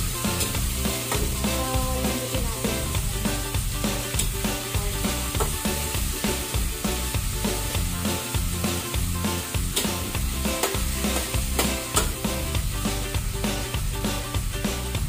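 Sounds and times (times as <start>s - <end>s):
background music with bass: 0.0s - 15.0s
meat sizzling in hot oil: 0.0s - 15.0s
metal turner scraping a wok: 2.6s - 12.4s.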